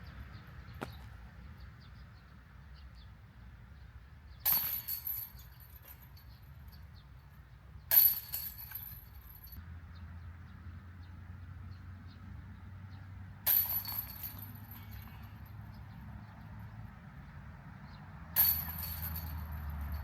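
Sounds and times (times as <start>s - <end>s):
discs hitting basket chains: 4.4s - 6.2s, 7.9s - 9.6s, 13.5s - 15.4s, 18.4s - 20.0s.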